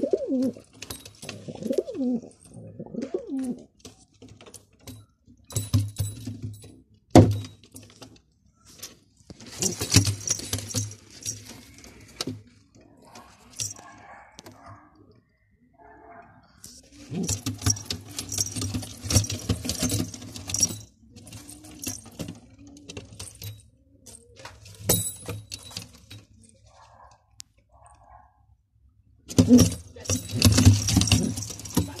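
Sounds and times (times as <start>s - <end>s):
pigeon wings clattering and flapping: 9.3s - 12.5s, 16.8s - 23.6s, 29.3s - 32.0s.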